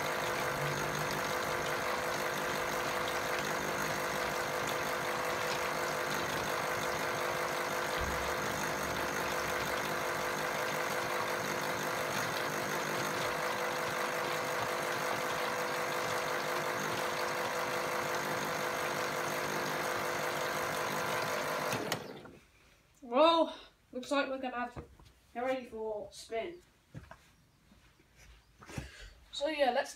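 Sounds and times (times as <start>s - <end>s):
toy washing machine motor whirring: 0.0s - 22.4s.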